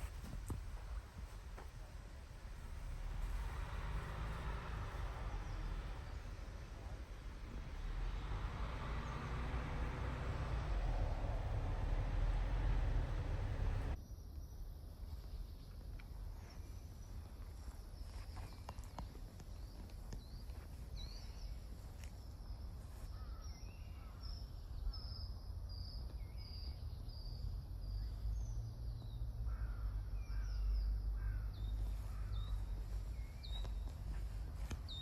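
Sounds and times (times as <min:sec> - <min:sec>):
steady low rumble: 0:00.0 - 0:14.0, 0:31.0 - 0:35.0
birds chirping: 0:00.0 - 0:14.6, 0:15.2 - 0:35.0.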